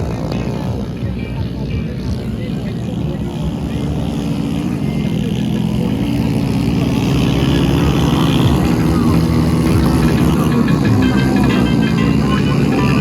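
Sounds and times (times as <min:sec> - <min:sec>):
motorcycle engines running: 0:00.0 - 0:13.0.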